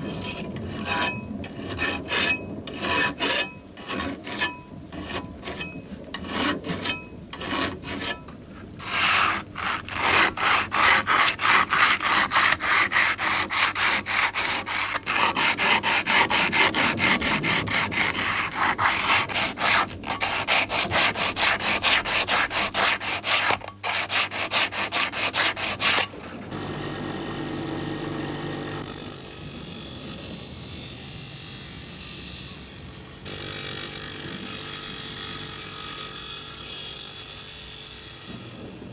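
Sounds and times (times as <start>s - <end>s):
sandpaper rubbing back and forth: 0.0s - 26.5s
mechanical whir with low hum: 26.0s - 30.8s.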